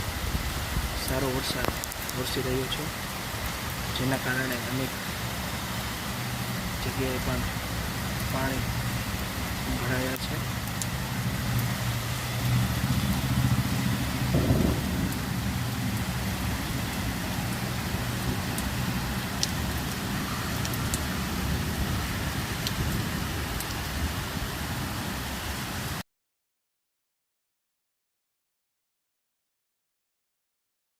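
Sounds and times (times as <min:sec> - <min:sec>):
heavy rain hissing: 0:00.0 - 0:26.0
raindrops ticking: 0:00.4 - 0:24.1
vehicle engine humming: 0:05.0 - 0:22.3.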